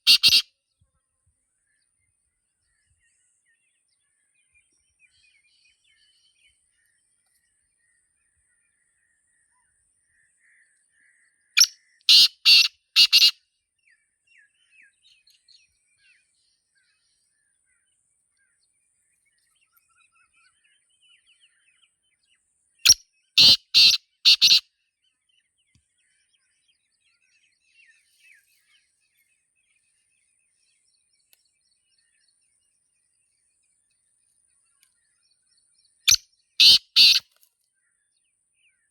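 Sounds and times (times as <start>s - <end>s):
bird calling quick notes: 0.0s - 0.4s, 11.6s - 13.3s, 23.4s - 24.6s, 36.1s - 37.2s
faint bird chirps: 0.0s - 38.9s.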